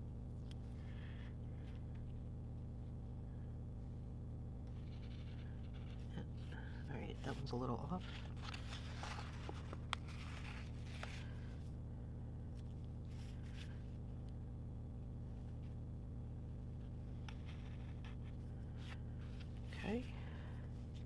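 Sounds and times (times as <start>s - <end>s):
steady low hum: 0.0s - 21.0s
sticker sheets rustling: 7.0s - 11.3s.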